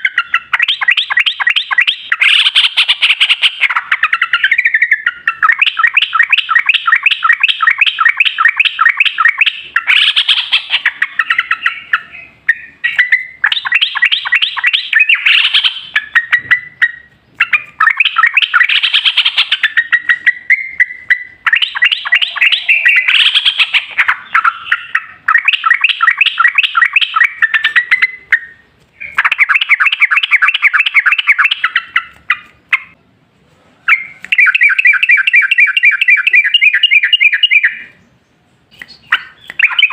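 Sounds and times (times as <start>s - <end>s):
bulbul chattering song: 0.0s - 33.1s, 33.8s - 39.9s.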